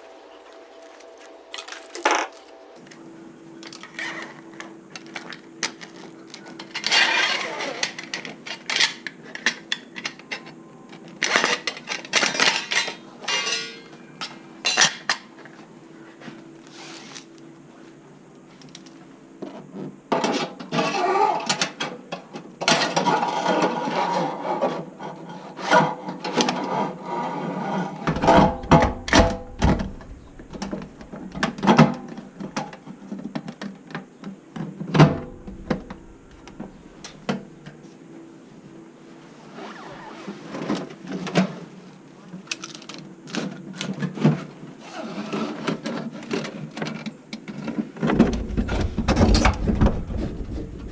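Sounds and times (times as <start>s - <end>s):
hand tools knocking and scraping: 0.0s - 2.7s, 28.1s - 31.9s
heavy thumps: 28.1s - 31.9s, 35.0s - 37.5s, 48.1s - 50.9s.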